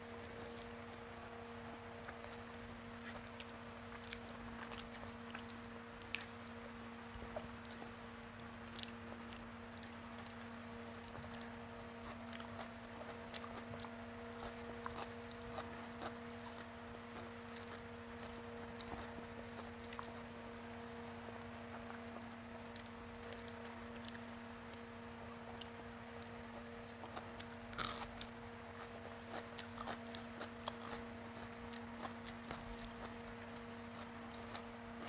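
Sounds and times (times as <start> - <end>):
steady low hum: 0.0 - 35.0
person chewing: 0.2 - 10.4, 11.3 - 24.3, 25.5 - 35.0
fingers squishing rice: 11.0 - 35.0.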